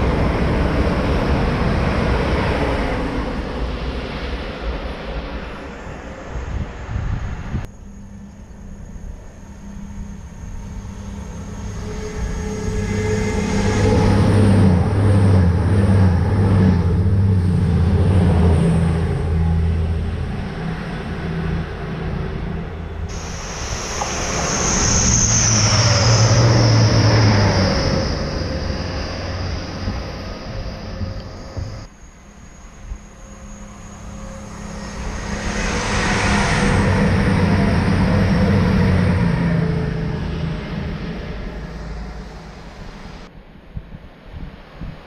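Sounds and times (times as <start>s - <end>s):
high whine: 0.0s - 45.0s
train passing at speed: 0.0s - 45.0s.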